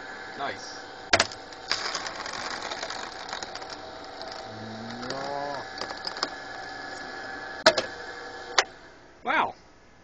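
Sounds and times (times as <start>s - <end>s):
drill press motor hum: 0.0s - 9.0s
plastic crackling as drilled: 1.1s - 7.9s.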